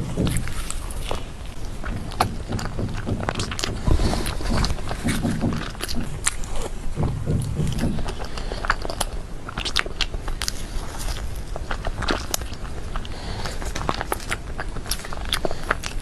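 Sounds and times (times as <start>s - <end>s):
soft sticky chewing: 0.0s - 16.0s
wet mouth clicks and smacks: 7.4s - 10.6s.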